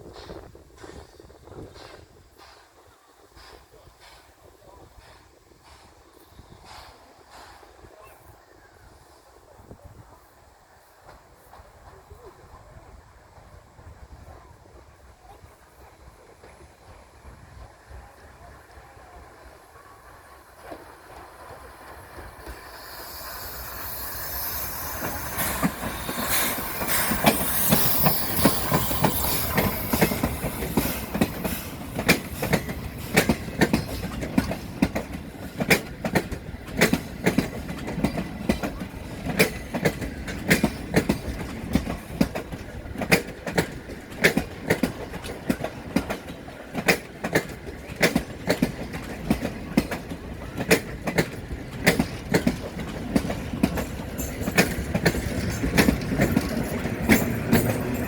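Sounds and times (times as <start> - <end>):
train rushing noise: 0.0 - 58.0
wheels clicking over rail joints: 20.4 - 58.0.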